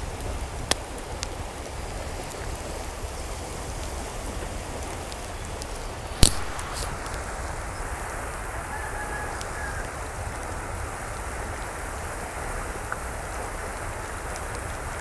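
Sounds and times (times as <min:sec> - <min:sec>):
steady rain falling: 0:00.0 - 0:15.0
loud click: 0:06.2 - 0:06.9
sharp drop-like taps: 0:06.2 - 0:06.9.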